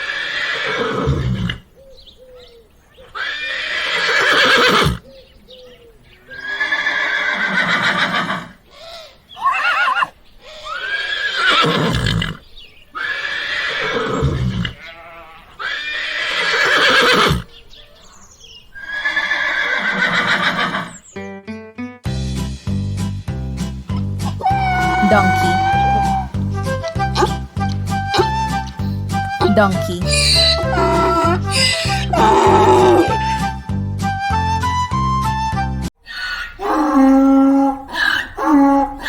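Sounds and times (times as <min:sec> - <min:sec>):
horse neighing: 0:00.0 - 0:01.7, 0:03.0 - 0:05.0, 0:06.2 - 0:21.0, 0:24.3 - 0:29.4, 0:30.0 - 0:33.6.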